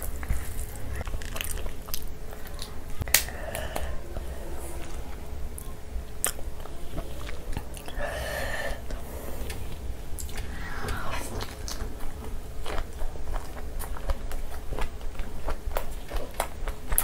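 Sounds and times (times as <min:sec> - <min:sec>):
chewing: 0:00.1 - 0:04.9, 0:11.3 - 0:17.0.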